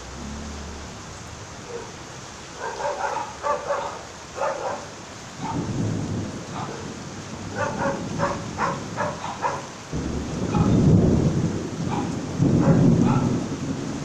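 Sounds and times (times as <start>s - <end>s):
deep thunder rumble: 0.0s - 2.2s, 5.4s - 9.1s, 9.9s - 14.0s
rain falling: 0.0s - 14.0s.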